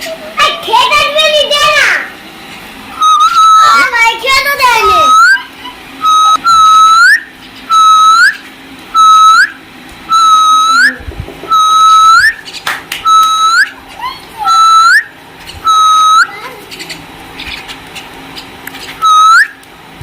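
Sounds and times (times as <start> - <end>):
whistled rising note: 3.0 - 3.7, 6.0 - 8.4, 9.0 - 12.4.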